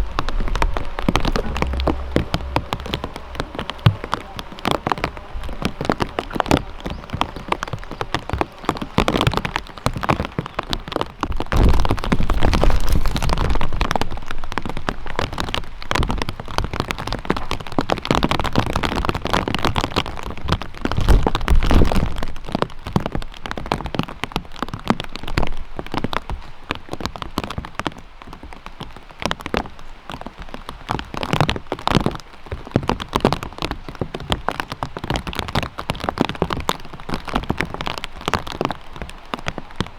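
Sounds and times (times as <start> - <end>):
low rumbles: 0.0 - 23.2
raindrops ticking: 0.0 - 39.9
steady rain: 0.0 - 39.9.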